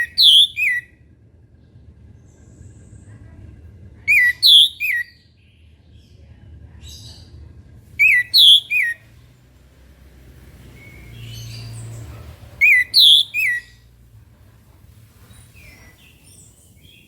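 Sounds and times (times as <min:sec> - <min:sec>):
thrush singing whistled notes: 0:00.0 - 0:00.9, 0:04.1 - 0:05.1, 0:08.0 - 0:09.1, 0:12.6 - 0:13.8.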